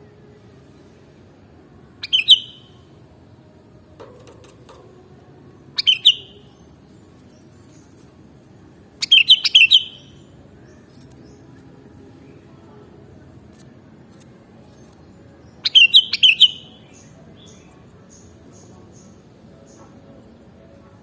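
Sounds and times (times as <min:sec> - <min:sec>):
bird chirping: 0:02.0 - 0:02.8, 0:05.8 - 0:08.0, 0:09.0 - 0:11.6, 0:15.6 - 0:19.9.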